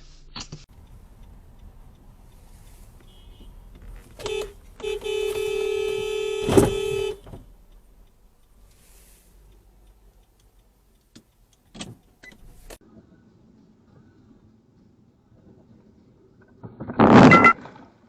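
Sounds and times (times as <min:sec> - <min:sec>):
car horn beeping: 0:00.8 - 0:08.0
sharp thump: 0:04.2 - 0:07.5.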